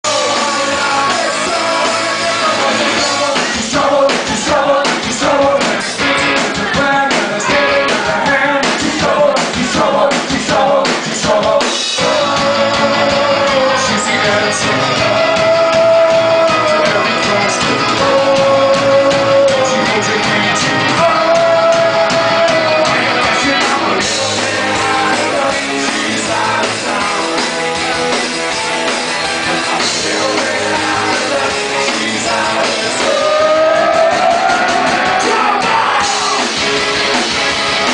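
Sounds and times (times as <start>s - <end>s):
rock band playing: 0.0s - 37.9s.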